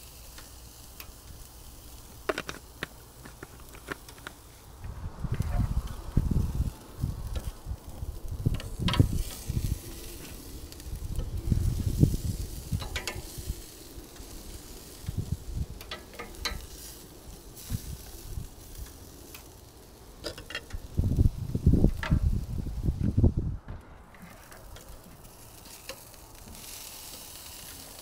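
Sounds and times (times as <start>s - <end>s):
burgers sizzling on a grill: 0.0s - 23.4s, 24.1s - 28.0s
low bumps on microphone: 23.0s - 24.3s.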